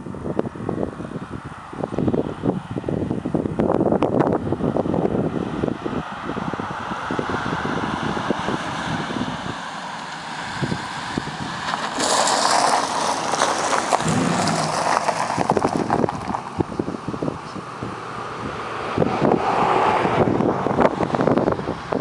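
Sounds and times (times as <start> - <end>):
wind buffeting microphone: 0.0 - 9.7, 10.4 - 22.0
vehicle exhaust running: 13.5 - 19.4.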